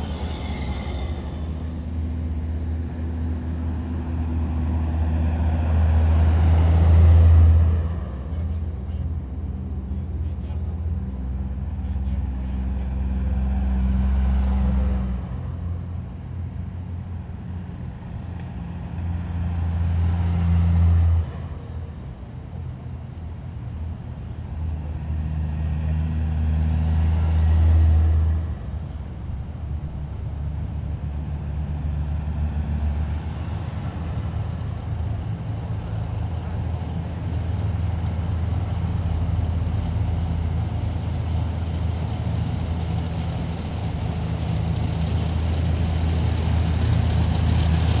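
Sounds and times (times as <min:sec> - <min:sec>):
heavy vehicle engines droning: 0:00.0 - 0:48.0.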